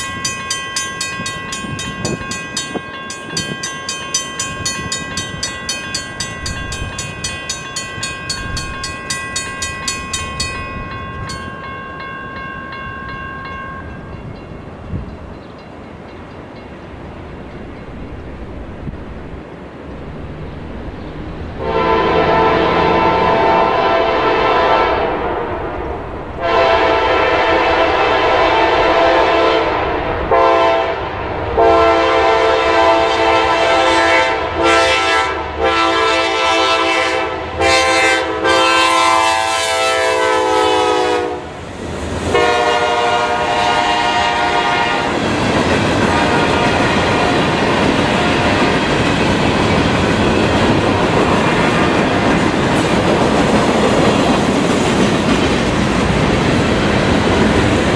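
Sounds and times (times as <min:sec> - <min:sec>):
locomotive air horn blasts: 0:21.6 - 0:25.6, 0:26.4 - 0:41.5, 0:42.3 - 0:45.1, 0:46.1 - 0:47.3.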